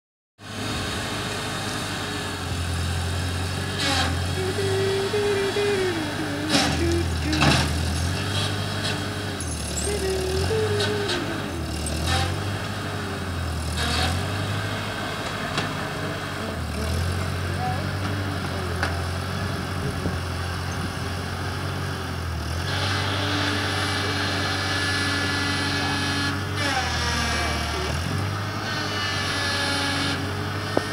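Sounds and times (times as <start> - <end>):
tractor engine running: 0.4 - 30.9
whine: 4.2 - 8.3.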